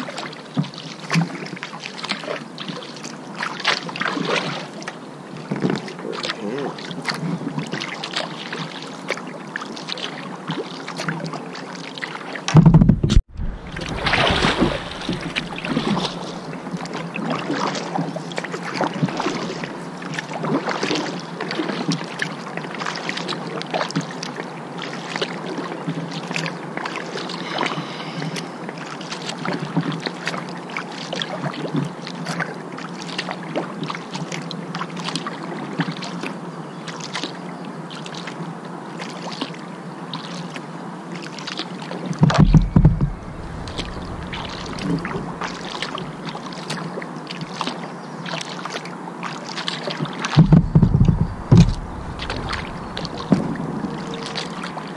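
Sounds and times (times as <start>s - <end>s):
paddle splashing water: 0.0s - 34.4s, 41.2s - 54.9s
rushing splashing: 13.2s - 17.8s, 42.3s - 47.6s, 50.2s - 54.9s
loud knock: 42.3s - 46.2s, 50.4s - 54.0s.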